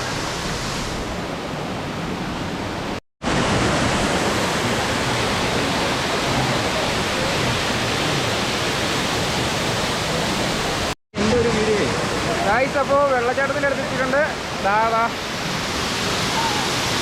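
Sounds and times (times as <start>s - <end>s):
waterfall roaring: 2.6s - 17.0s.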